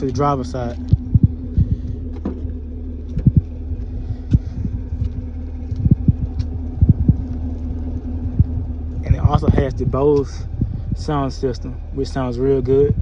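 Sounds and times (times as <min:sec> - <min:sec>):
car engine idling: 0:00.0 - 0:13.0
soft thumps: 0:00.8 - 0:03.6.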